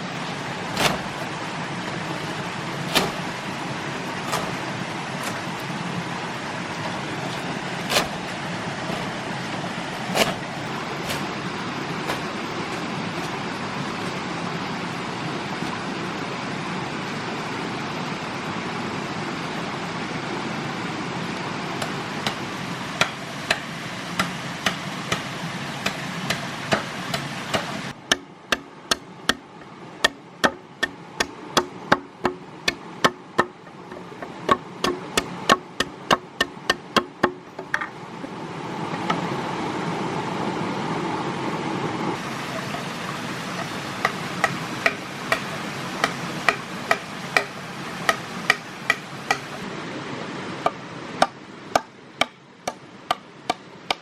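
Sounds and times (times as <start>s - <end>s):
steady rushing noise: 0.0s - 53.1s
hammer knocking on wood: 30.0s - 37.9s.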